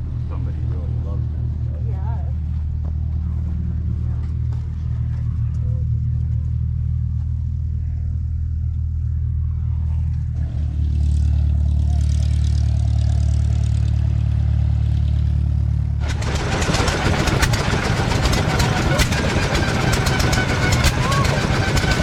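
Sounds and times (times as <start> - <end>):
engine droning: 0.0 - 22.0
loud clattering noise: 16.0 - 22.0.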